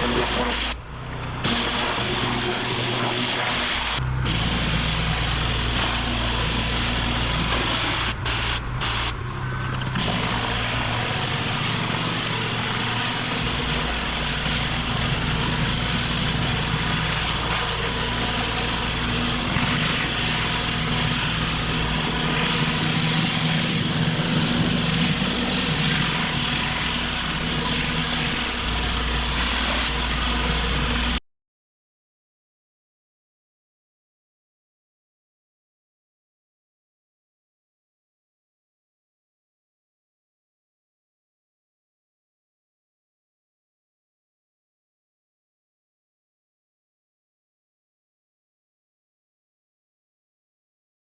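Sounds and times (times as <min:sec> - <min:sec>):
water jet spraying on paving: 0:00.0 - 0:00.8, 0:01.4 - 0:09.2, 0:09.8 - 0:31.2
pressure washer engine drone: 0:00.0 - 0:31.2.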